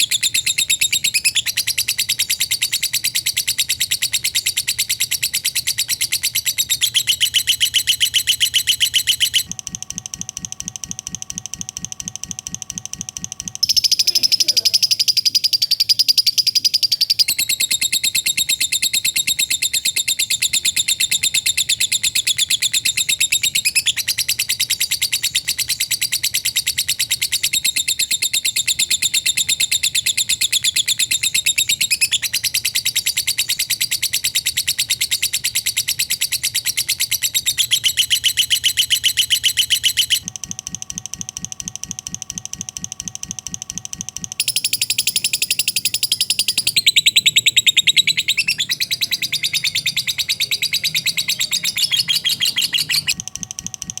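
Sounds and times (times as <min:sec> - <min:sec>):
lovebird rapid trilling chatter: 0:13.6 - 0:22.6, 0:44.4 - 0:53.2.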